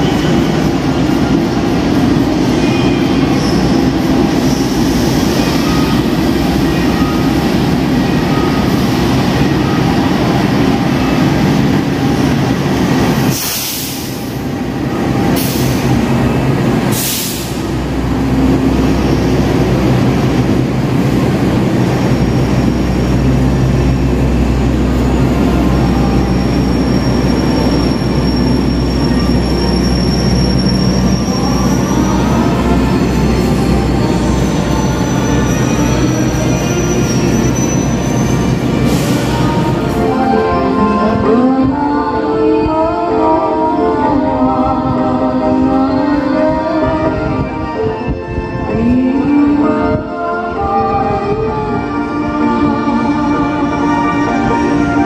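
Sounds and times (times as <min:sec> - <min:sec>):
train rumbling into station: 0:00.0 - 0:55.0
high wheel squeal: 0:25.9 - 0:39.7.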